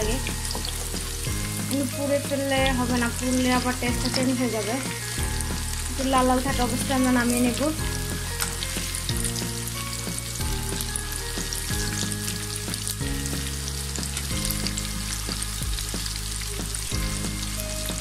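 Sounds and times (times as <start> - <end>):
food deep-frying in hot oil: 0.0 - 18.0
soft background music: 0.0 - 18.0.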